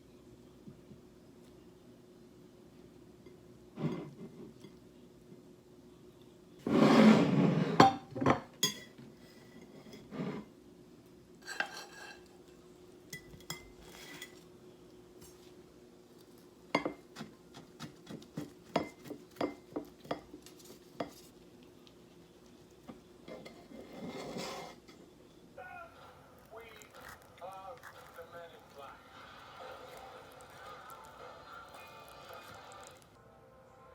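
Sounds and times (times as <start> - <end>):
cutlery and dishes clinking: 7.7 - 9.0, 11.4 - 12.5, 13.1 - 14.5.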